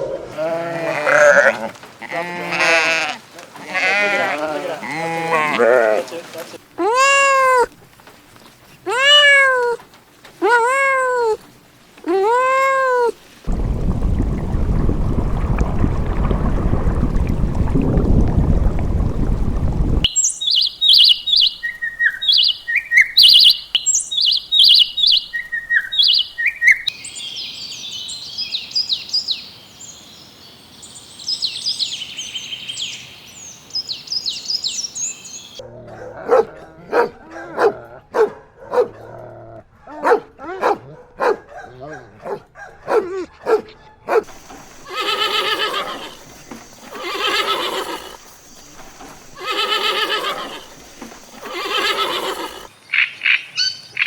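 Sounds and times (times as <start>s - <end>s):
loud low rumbling: 13.5s - 20.1s
bird chirping: 20.0s - 30.0s
dog barking: 35.6s - 39.2s, 39.8s - 44.4s.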